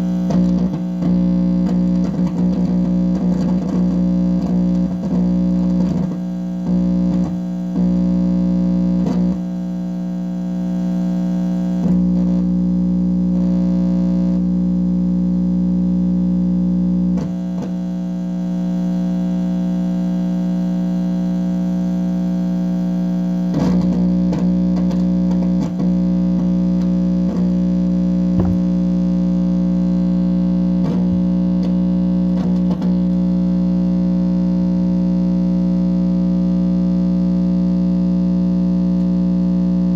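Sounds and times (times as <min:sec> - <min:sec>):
electrical hum through amplifier: 0:00.0 - 0:39.9.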